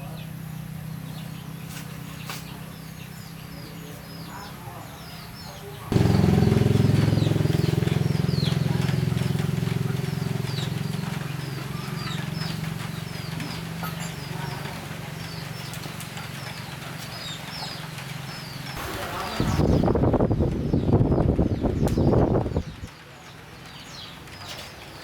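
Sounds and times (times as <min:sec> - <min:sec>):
small birds chirping: 0:00.0 - 0:25.0
machine humming with fast pulsing: 0:05.9 - 0:21.2.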